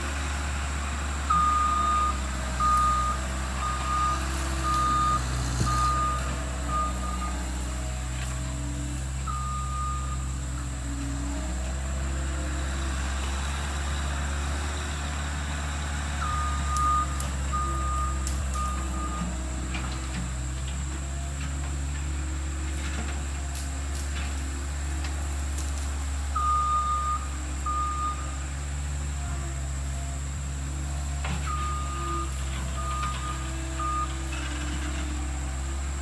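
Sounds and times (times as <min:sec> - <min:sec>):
skid steer engine running: 0:00.0 - 0:36.0
backup alarm beeping: 0:01.3 - 0:07.6, 0:09.2 - 0:10.4, 0:16.2 - 0:19.3, 0:26.4 - 0:28.3, 0:31.4 - 0:34.2.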